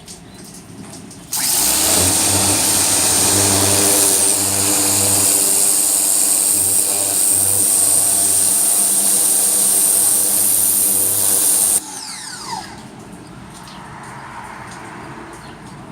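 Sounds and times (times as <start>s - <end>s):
pressure washer water jet hissing: 1.3s - 11.8s
motor winding down whine: 1.3s - 12.8s.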